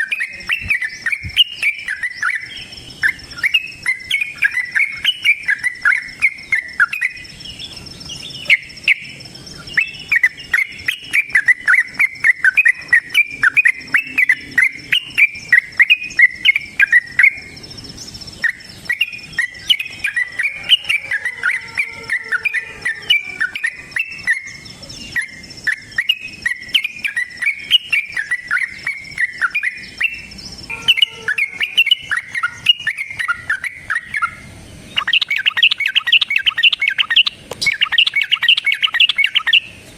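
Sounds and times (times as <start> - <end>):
bird singing chattering notes: 0.0 - 39.9
high insect whine: 0.0 - 39.9.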